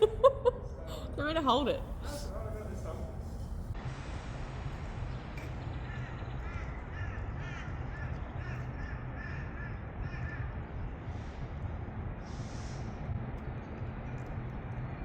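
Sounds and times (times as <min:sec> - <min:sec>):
steady low rumble: 0:00.0 - 0:15.0
crow cawing: 0:05.9 - 0:10.5.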